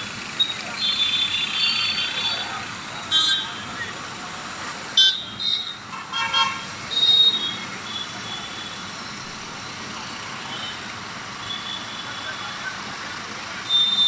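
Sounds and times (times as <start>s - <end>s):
road traffic noise: 0.0s - 14.0s
vehicle horns tooting: 0.4s - 3.9s, 5.0s - 8.9s, 11.4s - 12.7s, 13.6s - 14.0s.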